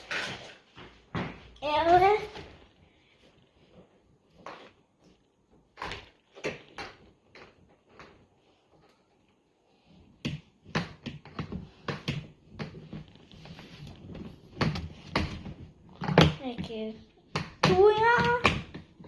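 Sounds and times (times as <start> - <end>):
toys tapping on hard surface: 14.5 - 19.0.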